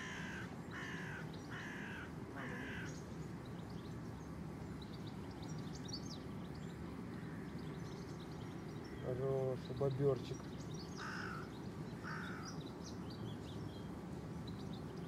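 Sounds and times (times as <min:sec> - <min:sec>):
harsh crow-like bird calls: 0:00.0 - 0:03.1, 0:07.1 - 0:07.9, 0:10.9 - 0:12.7
low background noise: 0:00.0 - 0:15.0
small birds chirping: 0:00.0 - 0:15.0.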